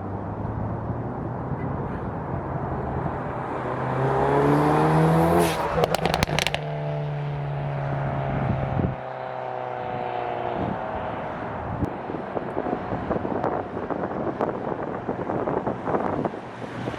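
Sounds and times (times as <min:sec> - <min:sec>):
car engine accelerating: 0:03.4 - 0:11.2
exhaust pops and crackles: 0:05.4 - 0:06.9.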